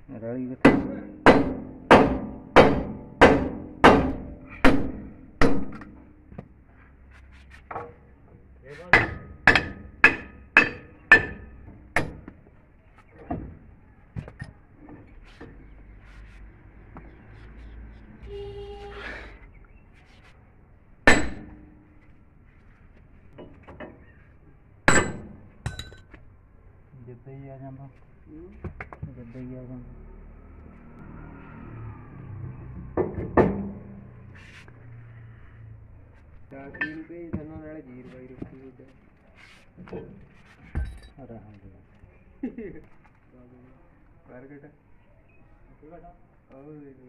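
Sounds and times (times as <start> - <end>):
hammer striking steel: 0.6 - 6.0, 8.9 - 12.3, 21.1 - 21.8, 24.9 - 26.0.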